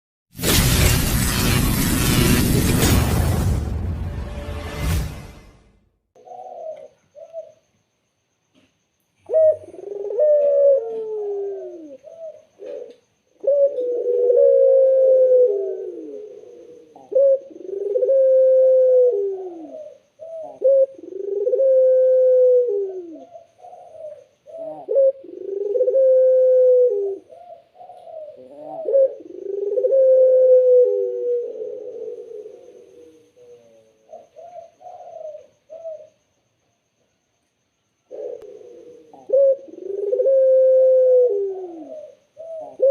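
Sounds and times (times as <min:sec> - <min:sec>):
dove cooing: 0:06.2 - 0:07.7, 0:09.2 - 0:36.2, 0:38.1 - 0:42.9.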